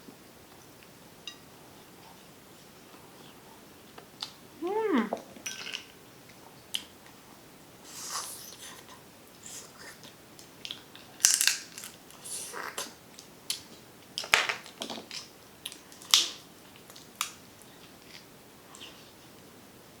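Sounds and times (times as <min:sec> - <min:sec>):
shellfish shells cracking: 0:11.2 - 0:12.0.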